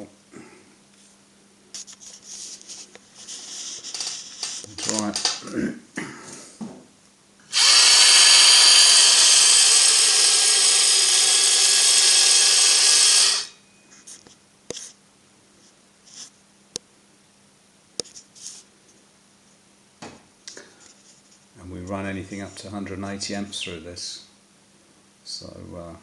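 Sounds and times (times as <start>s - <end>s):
handheld power tool running: 7.5s - 13.6s.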